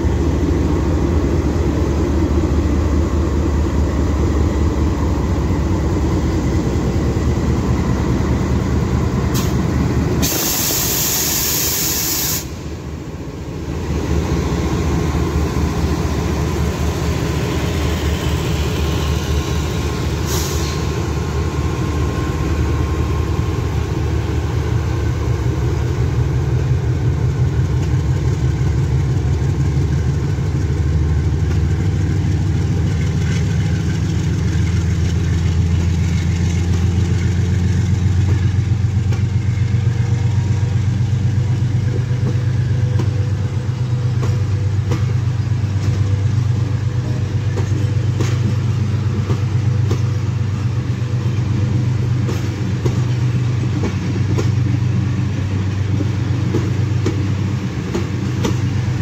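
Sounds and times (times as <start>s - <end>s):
train coaches rumbling past: 0.0s - 59.0s
wheels clicking over rail joints: 31.4s - 40.5s, 44.0s - 59.0s.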